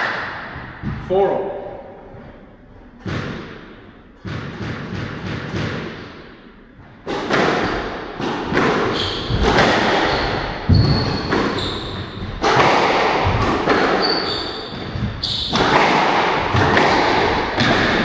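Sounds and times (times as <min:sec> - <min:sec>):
squash ball cracks: 0:07.1 - 0:11.6, 0:12.4 - 0:18.0
shoes squeaking on court floor: 0:08.6 - 0:12.6, 0:13.8 - 0:15.9.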